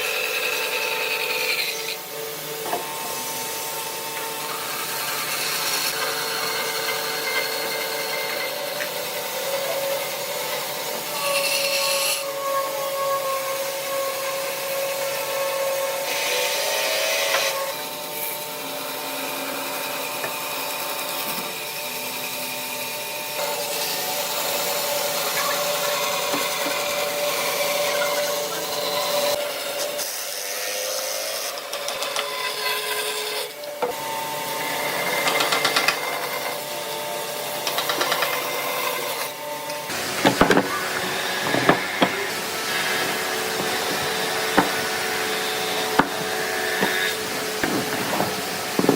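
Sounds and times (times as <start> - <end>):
tool scraping wood: 23.4 - 28.9, 39.9 - 48.9
steady tones: 39.9 - 48.9.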